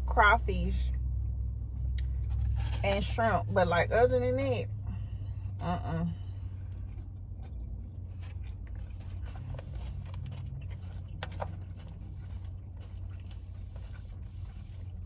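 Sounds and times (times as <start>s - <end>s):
low hum: 0.0s - 15.0s
chewing and mouth clicks: 6.4s - 15.0s.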